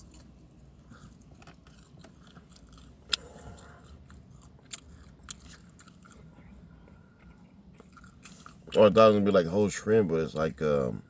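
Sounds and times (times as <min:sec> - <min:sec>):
person chewing food: 0:00.0 - 0:08.8.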